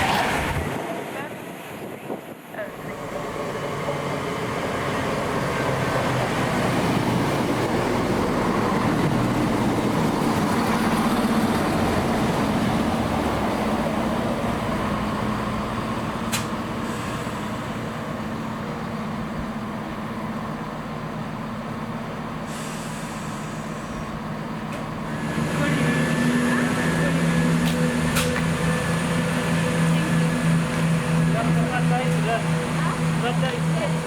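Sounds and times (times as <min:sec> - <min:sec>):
train running through station: 0:00.0 - 0:34.0
sharp click: 0:16.3 - 0:16.5.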